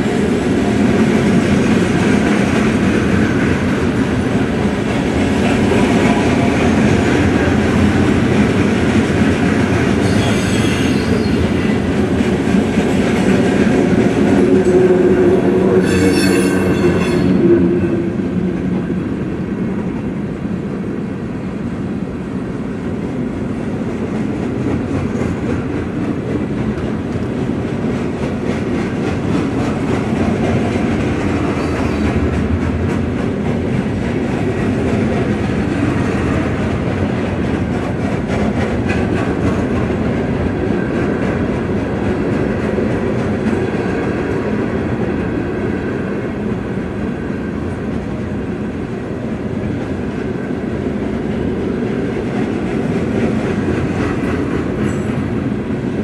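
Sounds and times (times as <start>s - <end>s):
freight train rumbling: 0.0s - 56.0s
high ringing tone: 15.7s - 18.1s
wheels clattering on rails: 22.9s - 56.0s.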